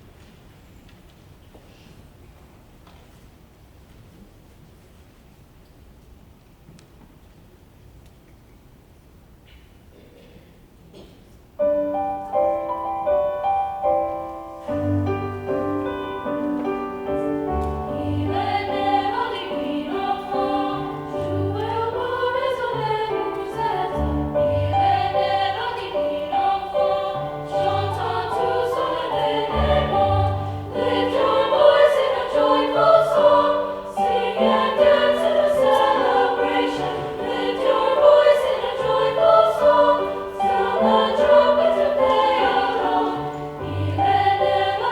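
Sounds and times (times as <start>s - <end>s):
piano accompaniment: 11.6s - 44.9s.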